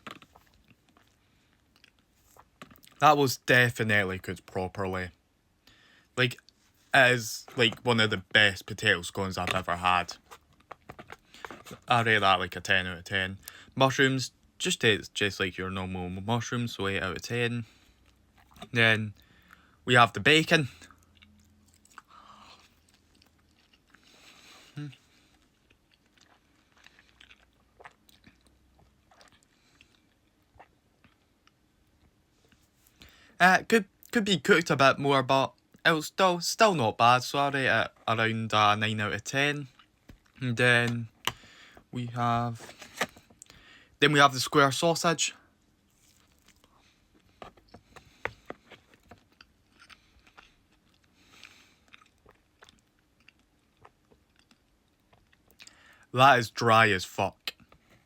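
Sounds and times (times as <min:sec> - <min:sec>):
person chewing: 0:00.0 - 0:03.0, 0:10.2 - 0:11.9, 0:17.9 - 0:19.8, 0:20.8 - 0:32.7, 0:45.9 - 0:56.0.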